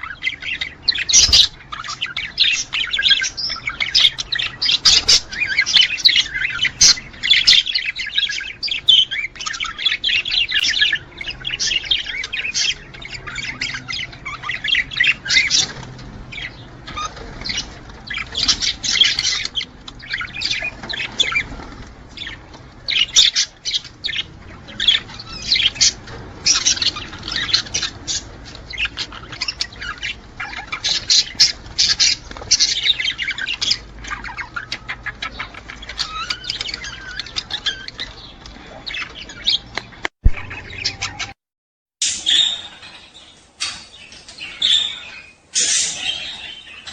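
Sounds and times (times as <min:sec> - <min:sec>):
budgerigars chattering and warbling: 0:00.0 - 0:41.4, 0:42.0 - 0:46.9.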